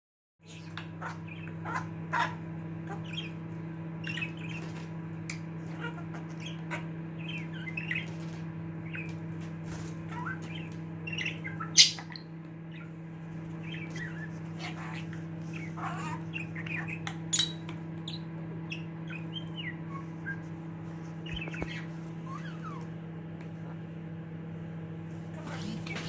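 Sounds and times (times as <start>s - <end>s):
steady low hum: 0.4s - 26.0s
budgerigar chattering: 0.5s - 3.4s, 5.7s - 8.1s, 10.1s - 12.9s, 13.6s - 20.4s, 25.4s - 26.0s
budgerigar squawk: 0.6s - 3.4s, 13.6s - 17.6s.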